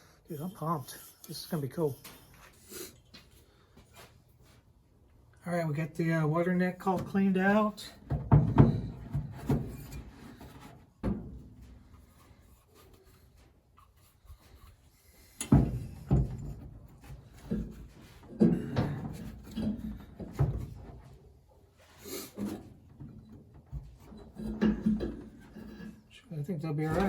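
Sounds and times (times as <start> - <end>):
knocks of tools and parts: 8.0 - 12.1, 15.4 - 21.2, 22.4 - 26.0.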